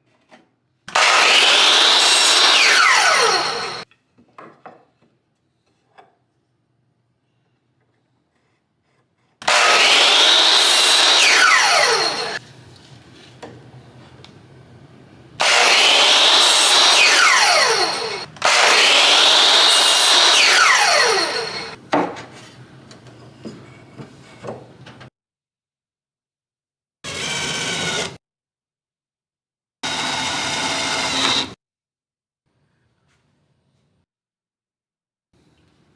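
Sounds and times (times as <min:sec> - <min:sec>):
power tool whining on wood: 0:00.9 - 0:03.8, 0:09.4 - 0:12.4, 0:15.4 - 0:21.8, 0:29.9 - 0:31.6.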